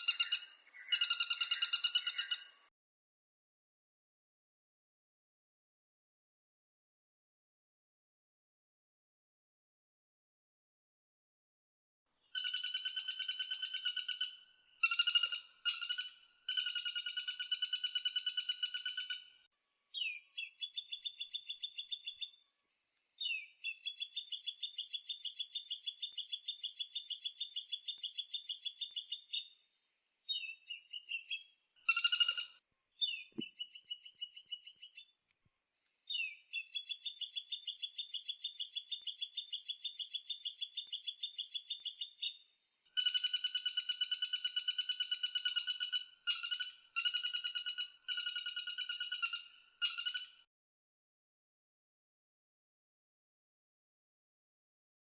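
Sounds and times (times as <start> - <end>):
woodpecker rattling trills: 0.0 - 2.6, 12.4 - 19.3, 43.0 - 50.4.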